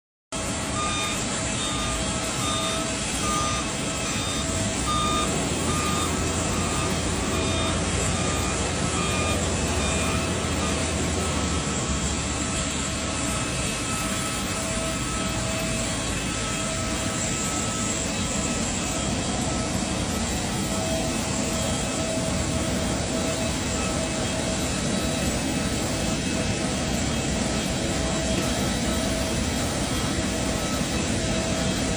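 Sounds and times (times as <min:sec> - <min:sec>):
jet engine noise: 0:00.3 - 0:31.9
reversing alarm beeps: 0:00.4 - 0:31.9.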